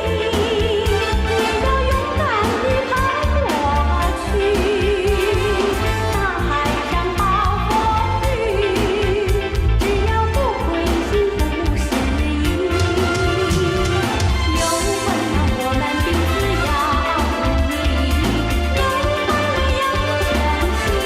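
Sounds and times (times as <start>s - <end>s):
pop karaoke track: 0.0s - 21.0s.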